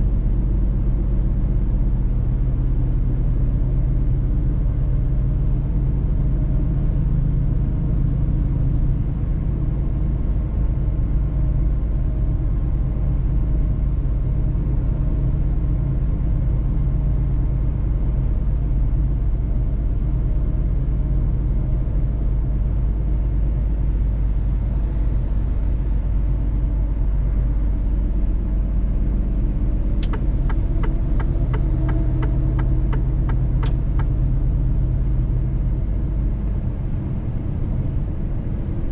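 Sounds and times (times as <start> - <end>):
truck engine and road rumble: 0.0 - 38.9
even ticking: 30.0 - 34.1.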